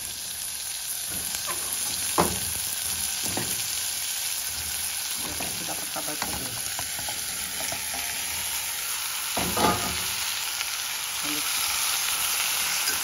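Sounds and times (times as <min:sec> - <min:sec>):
vegetables sizzling in oil: 0:00.0 - 0:13.0
scrape in pan: 0:01.3 - 0:03.8, 0:12.5 - 0:13.0.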